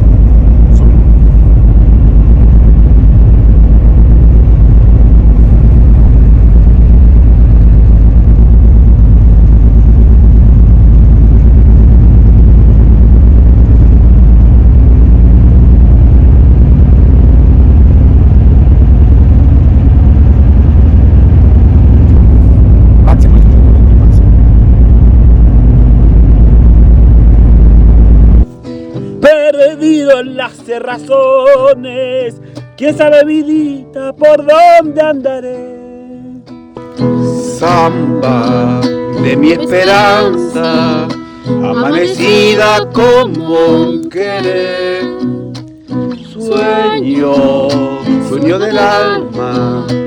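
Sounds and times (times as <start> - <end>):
car road and wind rumble: 0.0 - 28.5.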